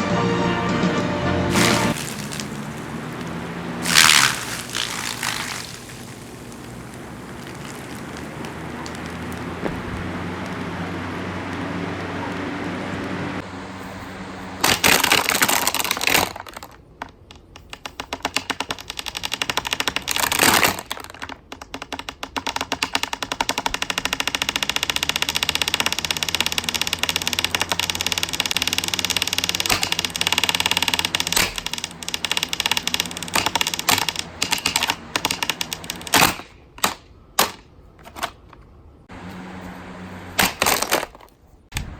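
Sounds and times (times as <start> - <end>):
box fan motor hum: 1.5 - 15.9, 23.5 - 36.1, 38.7 - 41.1
fan clattering and cracking: 1.5 - 41.9.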